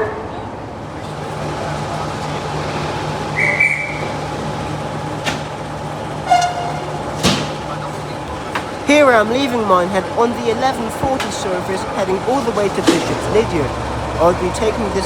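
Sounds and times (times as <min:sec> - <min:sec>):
diesel locomotive idling: 0:00.0 - 0:15.0
train horn toot: 0:01.2 - 0:08.2
high whistle: 0:03.3 - 0:04.2
sharp knocks: 0:05.2 - 0:05.6, 0:06.3 - 0:08.8.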